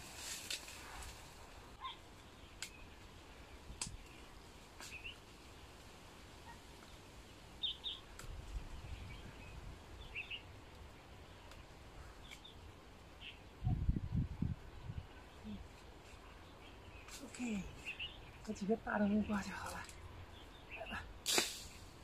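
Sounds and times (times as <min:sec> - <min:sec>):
light sharp clicks: 0:03.8 - 0:04.2
faint bird chirps: 0:13.2 - 0:21.1.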